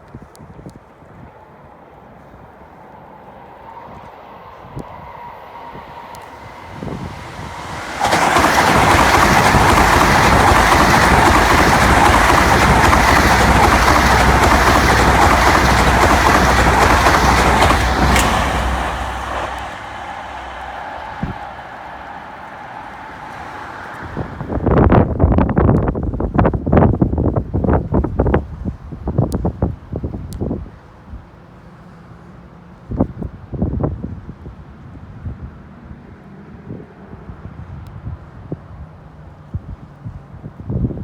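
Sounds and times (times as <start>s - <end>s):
train passing: 0.7s - 26.6s.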